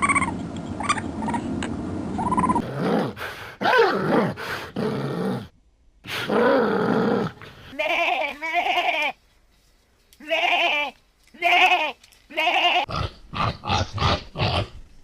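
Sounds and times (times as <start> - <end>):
animal calling: 2.2 - 2.7
goat bleating: 7.7 - 9.2, 10.2 - 12.9.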